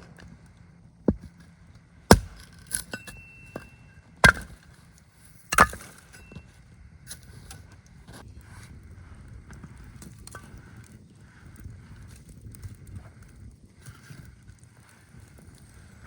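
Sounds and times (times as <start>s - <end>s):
wood chopping strikes: 2.1s - 4.6s, 5.5s - 6.2s.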